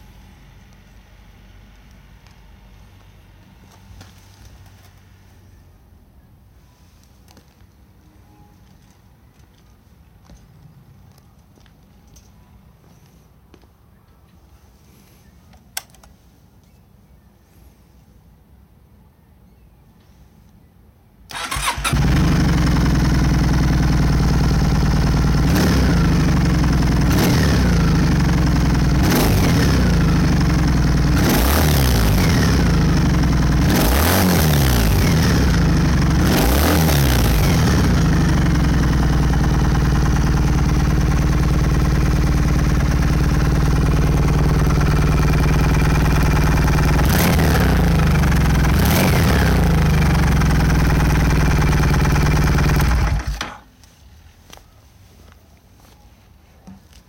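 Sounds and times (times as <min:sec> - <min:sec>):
motorcycle engine idling and revving: 0:21.3 - 0:53.6.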